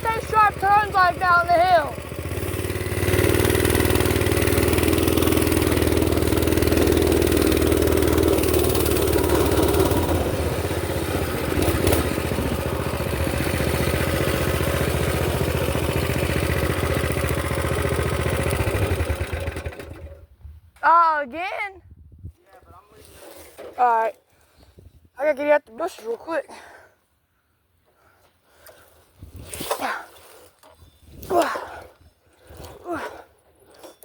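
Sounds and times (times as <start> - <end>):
small engine running: 0.0 - 20.2.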